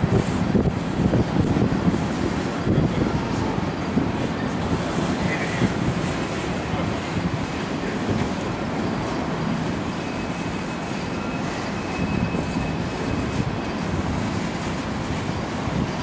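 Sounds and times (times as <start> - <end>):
train cars rumbling on rails: 0.0 - 16.0
high wheel squeal: 8.9 - 13.9.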